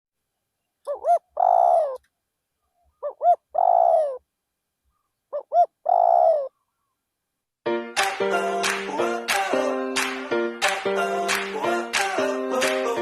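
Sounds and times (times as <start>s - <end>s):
dove cooing: 0.8s - 2.1s, 2.8s - 4.2s, 4.9s - 6.9s.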